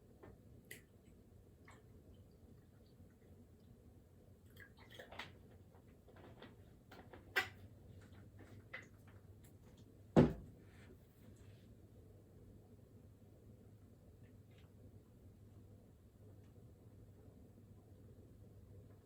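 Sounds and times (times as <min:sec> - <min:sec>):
heavy thump: 0:10.2 - 0:10.5.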